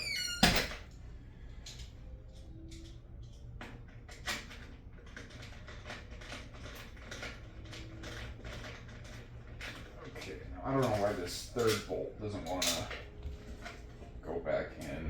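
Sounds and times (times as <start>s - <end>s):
steady low hum: 0.6s - 15.0s.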